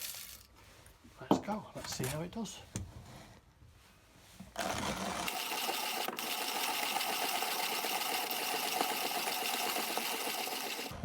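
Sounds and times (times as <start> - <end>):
hand coffee grinder crunching beans: 4.6 - 11.0.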